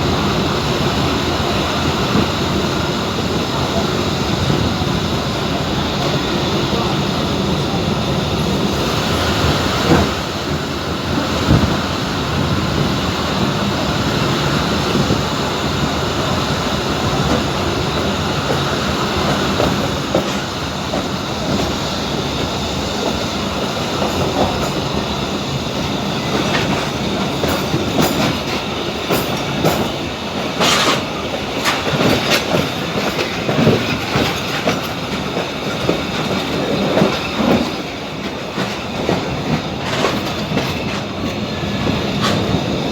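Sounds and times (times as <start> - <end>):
train wheels rumbling: 0.0 - 42.9.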